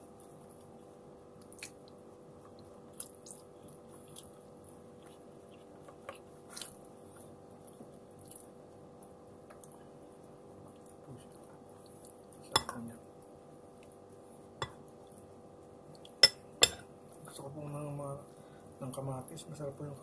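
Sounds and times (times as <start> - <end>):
person chewing food: 1.4 - 12.5.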